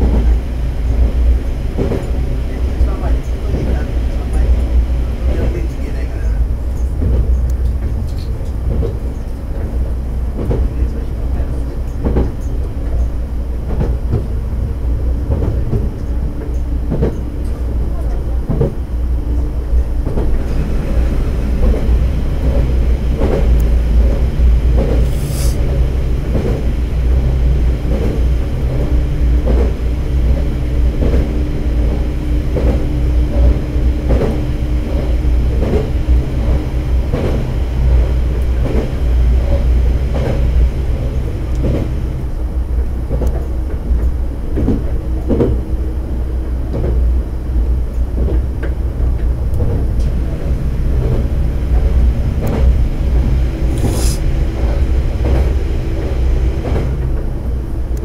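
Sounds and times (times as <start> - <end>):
railcar engine drone: 0.0 - 58.0
short high hiss: 25.1 - 25.6, 53.7 - 54.2.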